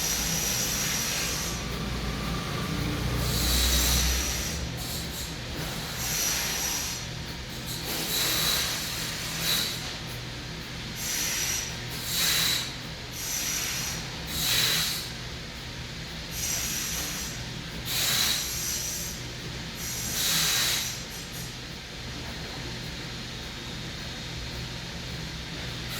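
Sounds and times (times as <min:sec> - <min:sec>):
steady low hum: 0:00.0 - 0:07.7, 0:09.8 - 0:25.9
hissing breath through nose: 0:11.0 - 0:12.7, 0:13.3 - 0:15.1, 0:17.9 - 0:19.2, 0:19.8 - 0:21.0.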